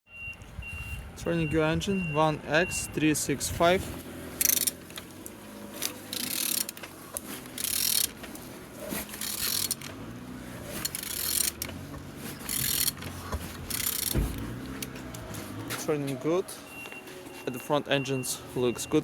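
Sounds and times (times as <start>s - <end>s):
engine turned over by hand: 3.5s - 16.0s.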